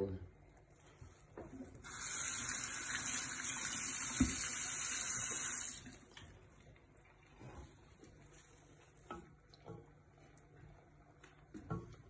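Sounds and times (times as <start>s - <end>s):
water running from a tap: 1.8s - 6.4s.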